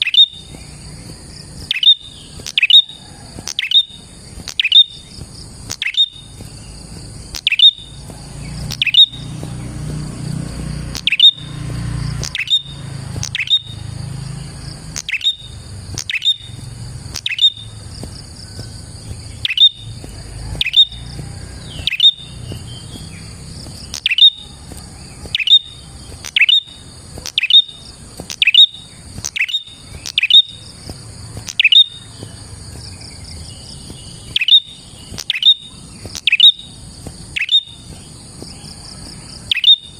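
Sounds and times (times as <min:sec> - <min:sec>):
bird sharp chip call: 0:00.0 - 0:00.6, 0:01.7 - 0:05.1, 0:05.7 - 0:06.3, 0:07.4 - 0:08.0, 0:08.6 - 0:09.4, 0:10.9 - 0:11.5, 0:12.2 - 0:13.8, 0:15.0 - 0:16.6, 0:17.2 - 0:17.7, 0:19.4 - 0:19.9, 0:20.5 - 0:21.0, 0:21.6 - 0:23.1, 0:23.8 - 0:30.6, 0:31.4 - 0:32.2, 0:34.3 - 0:36.7, 0:37.4 - 0:37.8, 0:39.5 - 0:39.9.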